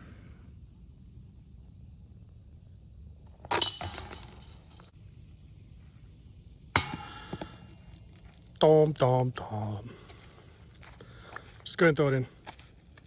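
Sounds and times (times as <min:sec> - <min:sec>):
disc hitting basket chains: 0:03.3 - 0:04.9, 0:06.8 - 0:07.6
short metallic clink: 0:03.4 - 0:04.9.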